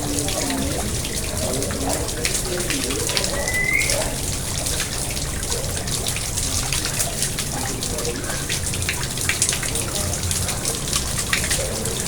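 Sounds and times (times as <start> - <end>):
pond water splashing and trickling: 0.0 - 12.0
short rising whistle: 3.4 - 4.1.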